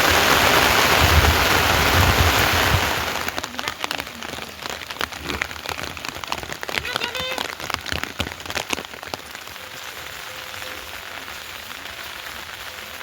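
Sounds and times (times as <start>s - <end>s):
heavy raindrops tapping: 0.0s - 13.0s
rain hissing: 0.0s - 13.0s.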